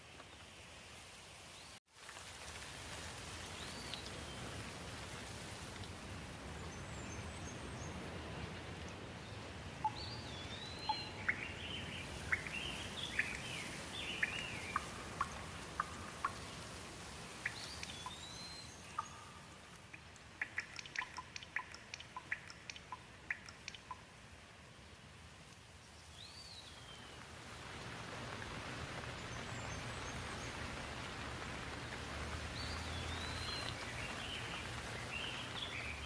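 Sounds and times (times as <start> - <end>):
rain falling: 1.8 - 36.0
small birds chirping: 6.6 - 24.1, 28.4 - 36.0.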